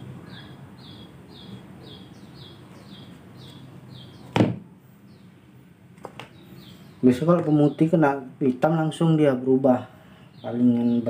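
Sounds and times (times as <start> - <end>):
small bird chirping: 0.0 - 4.4, 5.0 - 5.4, 6.2 - 8.2.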